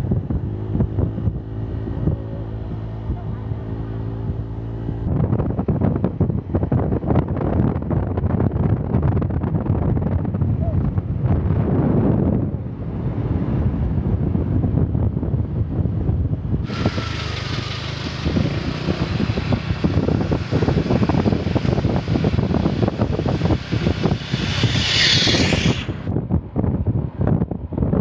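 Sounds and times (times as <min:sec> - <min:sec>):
vehicle travelling fast: 0:00.0 - 0:07.8, 0:09.3 - 0:27.6
wind buffeting on microphone: 0:00.0 - 0:28.0
steady rushing hiss: 0:16.7 - 0:26.1.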